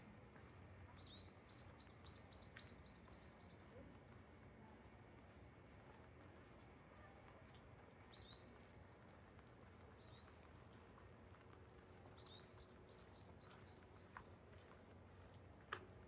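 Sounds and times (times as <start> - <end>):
faint birdsong: 0.9 - 3.8, 8.1 - 8.6, 9.9 - 10.5, 12.0 - 14.9
light tick: 15.6 - 15.9.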